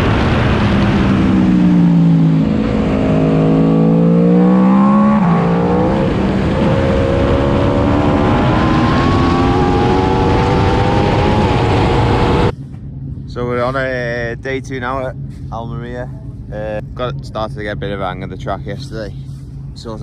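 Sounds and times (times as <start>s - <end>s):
wind noise: 0.0s - 12.7s
motorcycle engine accelerating: 0.0s - 20.0s.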